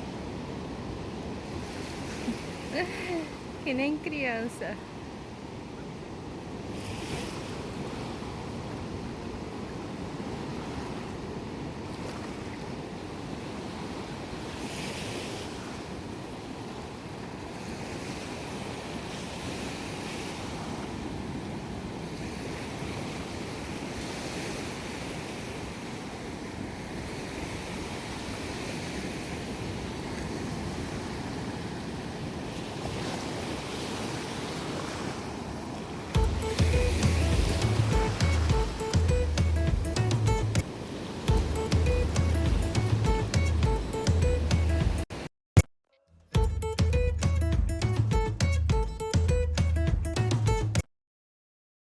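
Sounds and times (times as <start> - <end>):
sea waves breaking on beach: 0.0 - 45.3.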